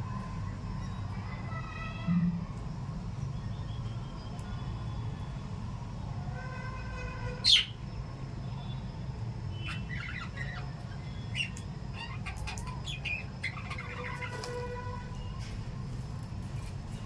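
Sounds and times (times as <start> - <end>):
birds chirping: 9.5 - 14.6.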